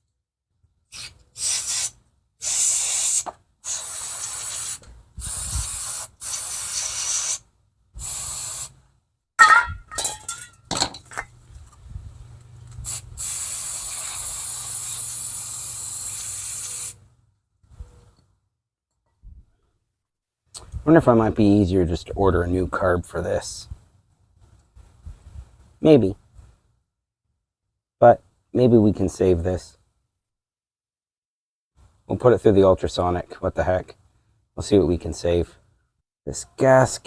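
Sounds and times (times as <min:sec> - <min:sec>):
aerosol spray hissing: 0:01.0 - 0:07.4, 0:08.0 - 0:08.7, 0:12.8 - 0:17.0.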